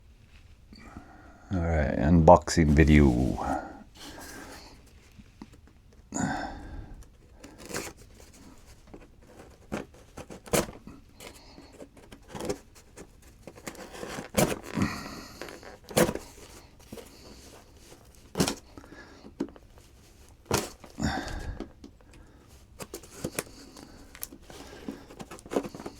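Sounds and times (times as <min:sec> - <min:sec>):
cardboard scraping: 0:02.6 - 0:05.0, 0:07.1 - 0:21.7, 0:22.3 - 0:25.9
tape tearing: 0:07.4 - 0:08.5, 0:09.2 - 0:11.4, 0:12.1 - 0:18.6.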